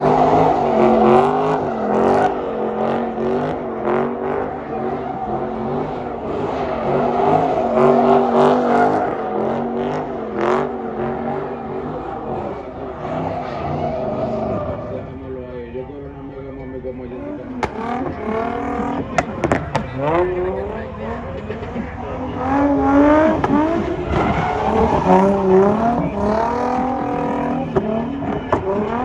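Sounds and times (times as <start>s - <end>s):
car engine revving: 0.0s - 29.0s
exhaust cracks: 16.9s - 29.0s.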